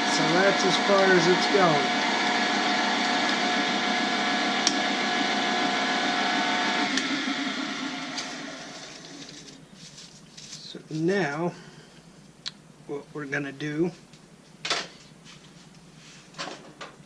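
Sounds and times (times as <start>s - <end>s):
lathe spindle whining hum: 0.0s - 9.7s.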